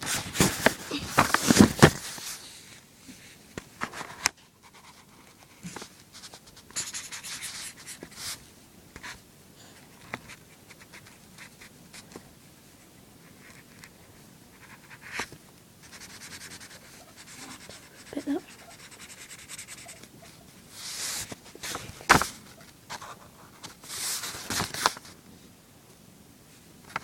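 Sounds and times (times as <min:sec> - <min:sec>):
drawing tool scratching paper: 0:15.8 - 0:20.2.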